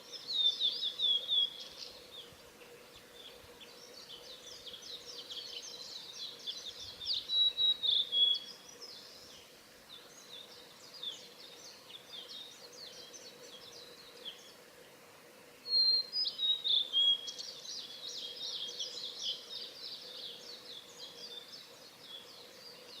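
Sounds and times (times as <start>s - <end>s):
faint high bird chirping: 0.0s - 14.6s, 15.6s - 23.0s
bird singing whistled phrases: 15.7s - 17.4s.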